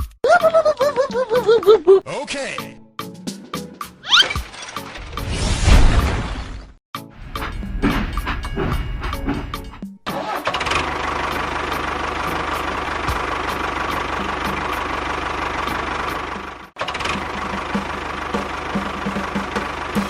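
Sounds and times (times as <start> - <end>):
music: 0.0 - 5.4, 6.9 - 10.4, 11.7 - 14.9, 17.2 - 20.0.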